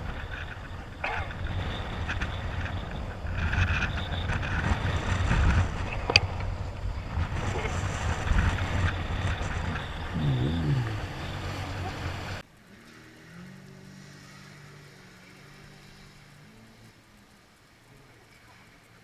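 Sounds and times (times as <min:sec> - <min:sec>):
low rumble: 0:00.0 - 0:12.4
wind buffeting microphone: 0:00.0 - 0:12.4.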